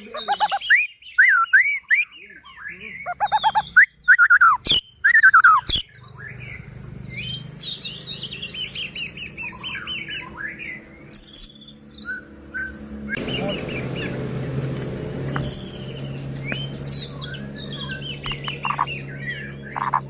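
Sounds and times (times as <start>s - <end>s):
bird singing whistled phrases: 0.2s - 20.0s
sharp clicks: 18.2s - 18.9s.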